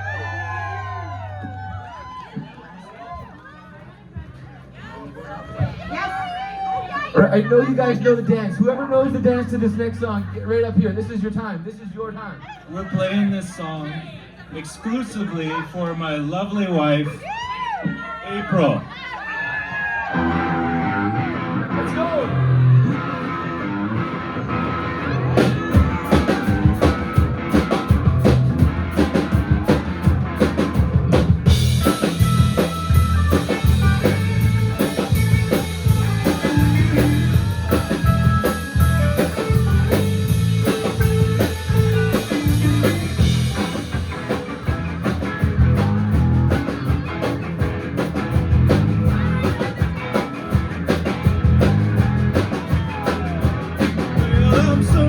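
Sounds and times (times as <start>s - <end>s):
rock band playing: 5.9s - 11.4s, 19.8s - 55.0s.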